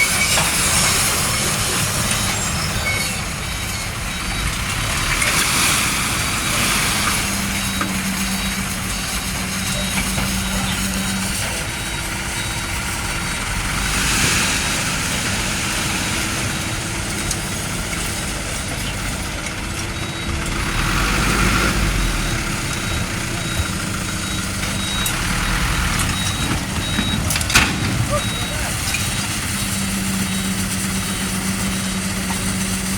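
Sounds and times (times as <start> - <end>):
diesel trucks rumbling: 0.0 - 32.9
road noise: 0.0 - 32.9
short high beeps: 28.0 - 29.3.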